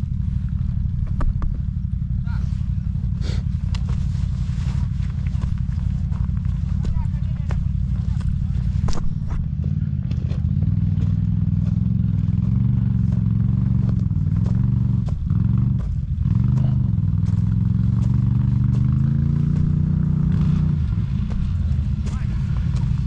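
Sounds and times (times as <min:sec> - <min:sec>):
quad bike engine revving: 0:00.0 - 0:23.0
clatters and scrapes: 0:03.6 - 0:09.4.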